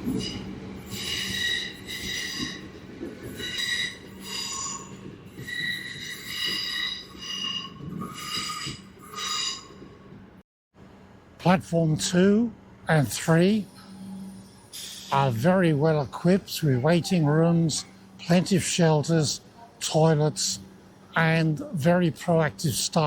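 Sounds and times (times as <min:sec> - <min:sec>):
low rumble of train running: 0:00.0 - 0:23.0
train wheels squealing: 0:00.1 - 0:09.9, 0:13.7 - 0:15.2.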